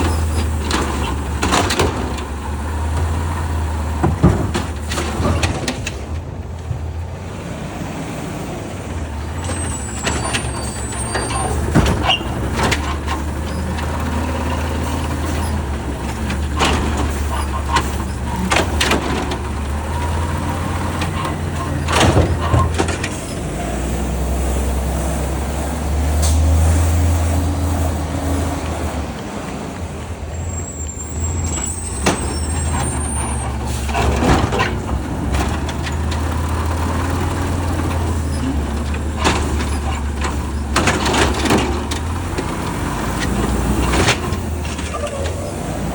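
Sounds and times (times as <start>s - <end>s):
sharp clanks and bangs: 0.0s - 6.3s, 9.3s - 23.6s, 31.4s - 45.4s
garbage truck engine running: 0.0s - 45.9s
high squeals: 9.3s - 18.8s.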